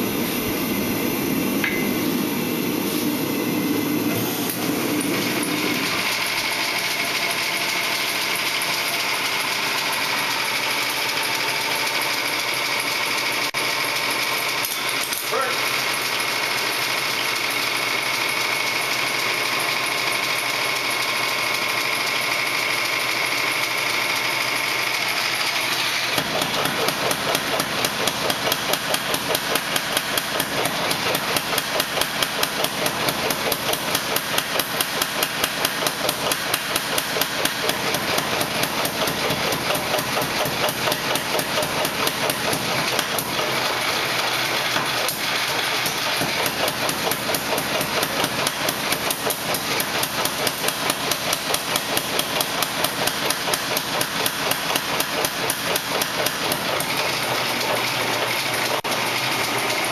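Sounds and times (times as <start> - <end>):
rushing noise with high whine: 0.0 - 5.8
hammer blows forging steel: 1.4 - 3.3, 26.0 - 59.9.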